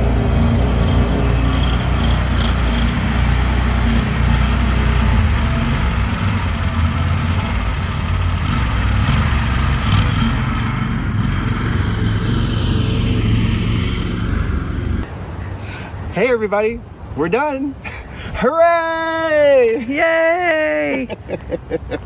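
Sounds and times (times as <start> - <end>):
small gasoline engine running: 0.0 - 15.0.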